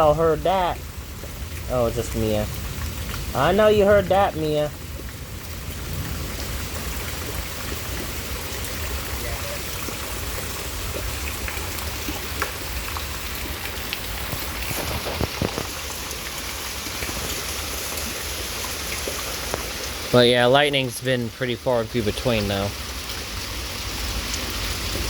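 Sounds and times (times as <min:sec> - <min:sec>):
steady rain falling: 0:00.0 - 0:25.0
water drips: 0:00.0 - 0:25.0.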